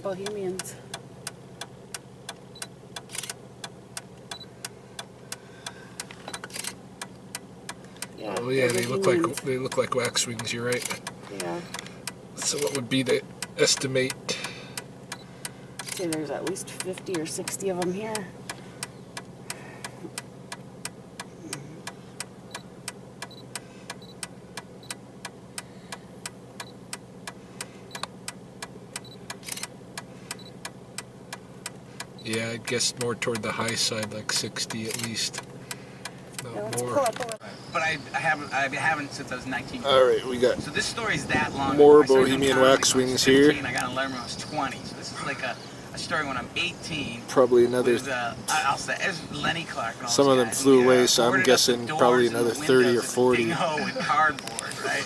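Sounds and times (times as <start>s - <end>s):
rapid even ticking: 0.0s - 39.0s
vehicle engine idling: 0.0s - 55.0s
sharp clicks: 0.2s - 37.4s.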